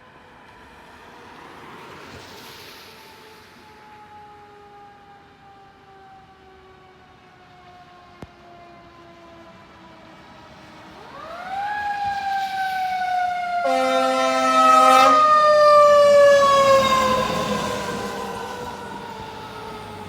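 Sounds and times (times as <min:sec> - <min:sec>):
fire truck siren: 0:03.5 - 0:20.0
air horn blast: 0:13.5 - 0:19.3.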